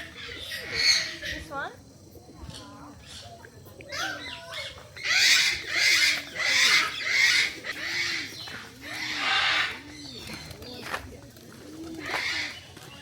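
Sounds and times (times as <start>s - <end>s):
harsh screechy animal calls: 3.9s - 9.8s.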